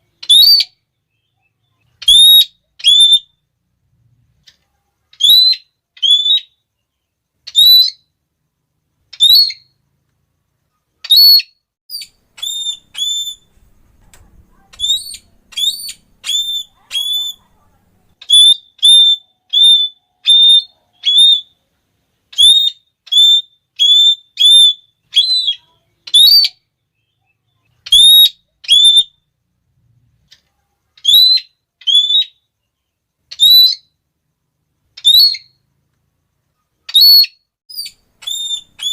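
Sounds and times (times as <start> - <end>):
parrot shrill calls: 0.2 - 0.8, 2.0 - 3.4, 5.2 - 6.6, 7.5 - 8.1, 9.1 - 9.7, 11.0 - 13.5, 14.8 - 17.5, 18.2 - 21.6, 22.3 - 26.6, 27.9 - 29.2, 31.0 - 32.4, 33.3 - 34.0, 35.0 - 35.6, 36.9 - 38.9.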